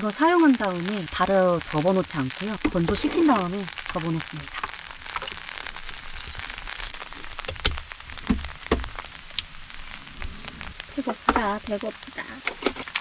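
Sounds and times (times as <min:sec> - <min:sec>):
heavy rain falling: 0:00.0 - 0:13.0
sharp knocks and ticks: 0:07.4 - 0:09.5.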